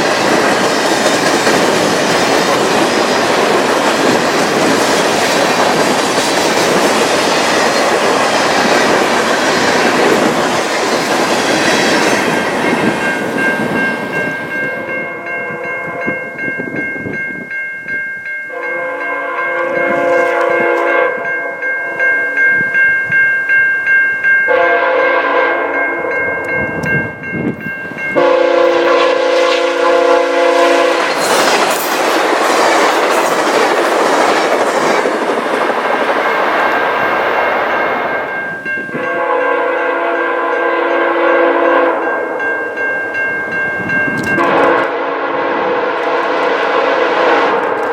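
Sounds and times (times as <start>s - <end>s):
train wheels rumbling on rails: 0.0s - 17.5s, 25.2s - 47.9s
locomotive air horn blasts: 18.5s - 21.6s, 24.5s - 25.8s, 28.2s - 31.2s, 39.0s - 42.1s, 44.4s - 47.9s.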